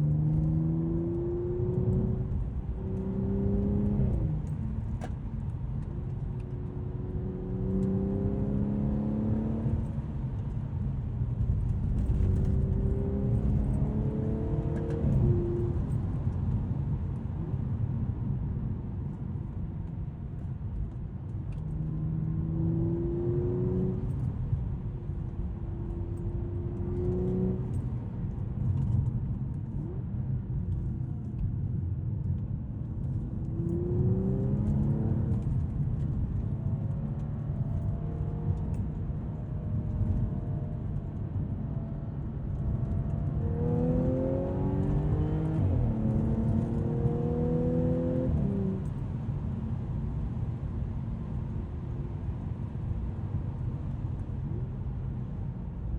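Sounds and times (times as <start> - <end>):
car engine accelerating: 0.0 - 17.5, 21.5 - 29.1, 33.0 - 50.4
low road rumble: 0.0 - 55.9.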